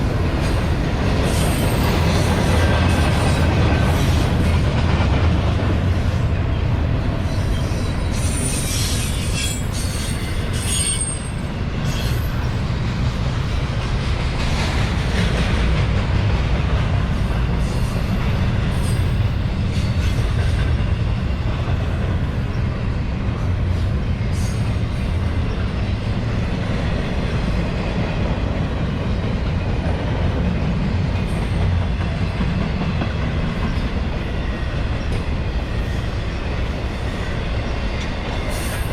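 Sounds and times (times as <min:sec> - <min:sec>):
train wheels rumbling on rail: 0:00.0 - 0:38.9
high-pitched wheel squeals: 0:07.3 - 0:12.2.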